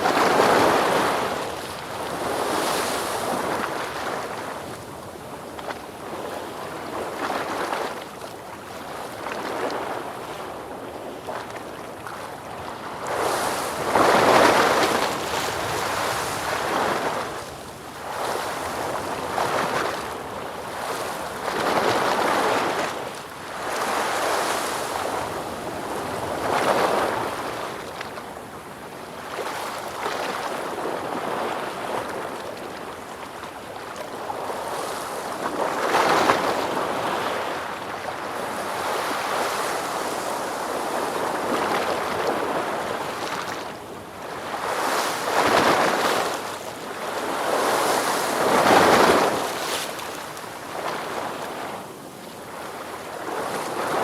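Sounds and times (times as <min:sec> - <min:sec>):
ocean waves washing ashore: 0:34.2 - 0:54.0.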